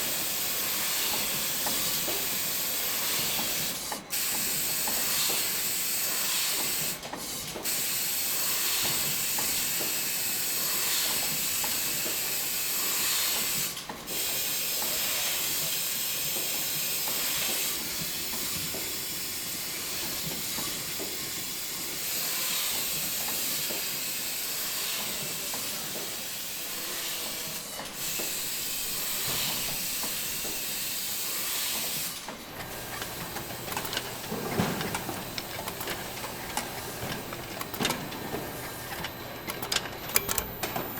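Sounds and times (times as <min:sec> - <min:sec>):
machinery hissing: 0:26.2 - 0:40.6.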